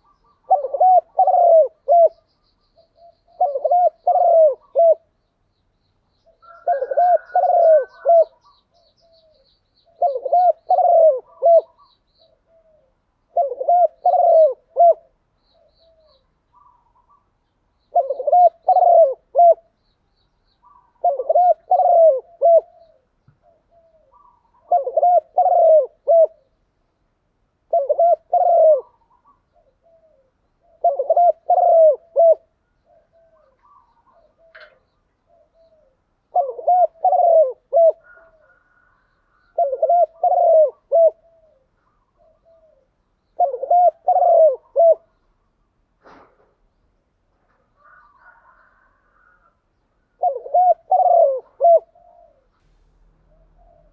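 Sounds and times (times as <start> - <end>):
dove cooing: 0.0 - 5.1, 6.2 - 19.8, 20.6 - 26.6, 27.6 - 45.2, 47.5 - 53.9
small bird chirping faintly: 0.0 - 14.2.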